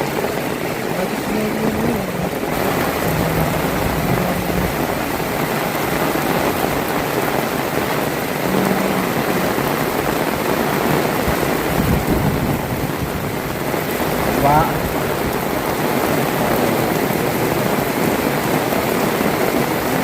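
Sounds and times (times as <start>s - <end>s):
heavy rain falling: 0.0s - 20.0s
low hum: 1.4s - 6.8s.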